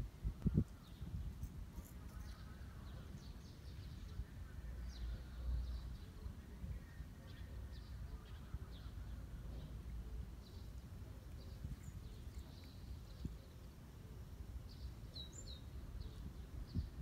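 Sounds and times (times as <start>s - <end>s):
low steady background noise: 0.0s - 17.0s.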